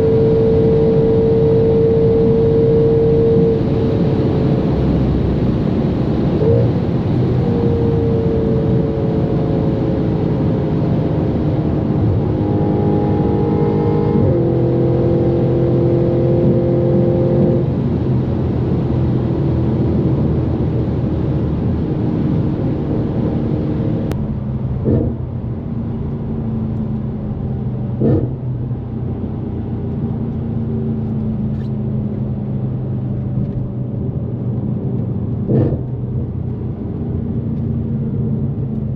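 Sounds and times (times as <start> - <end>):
car exhaust drone: 0.0 - 38.9.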